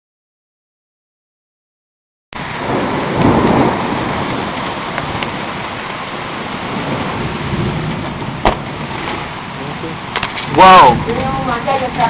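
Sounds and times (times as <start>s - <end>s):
heavy rain pouring: 2.4s - 12.0s.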